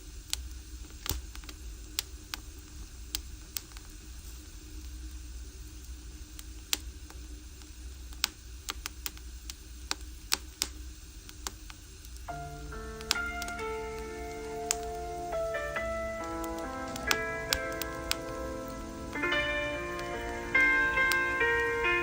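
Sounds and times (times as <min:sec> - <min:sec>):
firewood crackling and popping: 0:00.3 - 0:04.0, 0:05.9 - 0:22.0
low fire rumble: 0:12.1 - 0:21.9.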